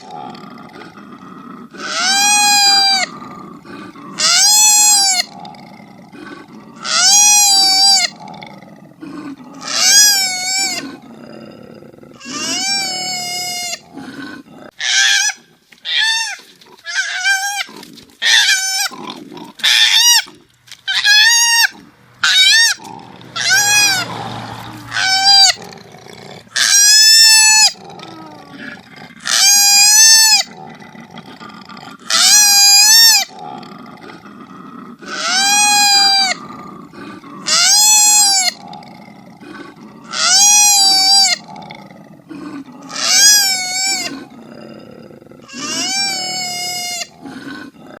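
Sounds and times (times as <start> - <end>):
low grunting: 2.6 - 6.8, 7.6 - 14.8, 22.8 - 26.6, 27.6 - 29.3, 40.9 - 48.0
koala squealing calls: 20.9 - 22.8, 23.4 - 24.1, 24.9 - 25.6, 35.1 - 36.4, 43.0 - 44.1, 45.5 - 47.1.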